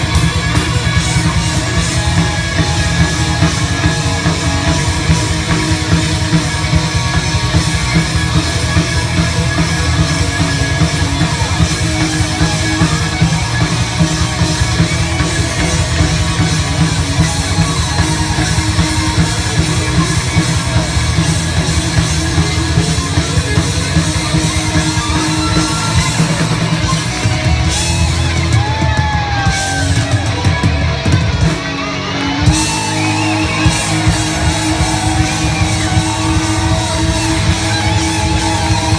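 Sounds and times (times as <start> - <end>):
rock band playing: 0.0 - 38.9.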